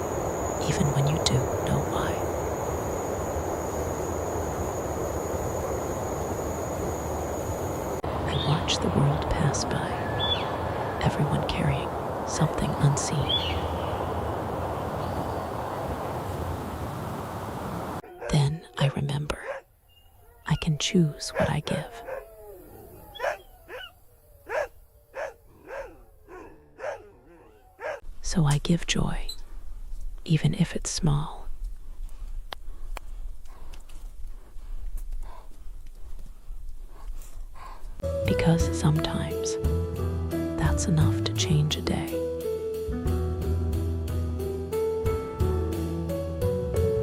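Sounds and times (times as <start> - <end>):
dog barking: 18.0 - 18.4, 19.4 - 19.7, 21.3 - 22.3, 23.1 - 28.0.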